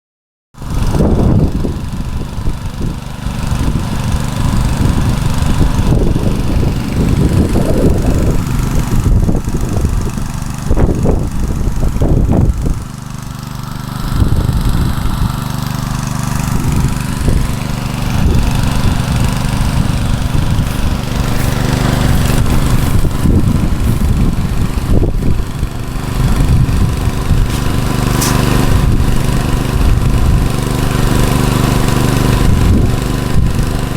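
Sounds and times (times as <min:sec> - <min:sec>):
petrol engine running: 0:01.5 - 0:33.9
low rumbling: 0:16.5 - 0:30.6.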